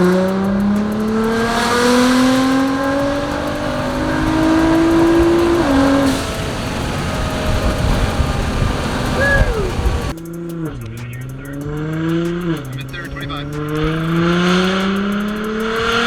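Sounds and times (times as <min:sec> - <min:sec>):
rough uneven exhaust: 0:00.0 - 0:10.2
car engine accelerating: 0:00.0 - 0:16.0.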